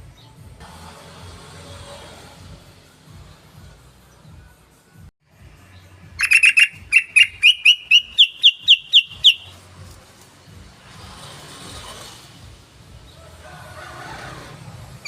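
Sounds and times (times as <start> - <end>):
bulbul calling: 6.1 - 9.6.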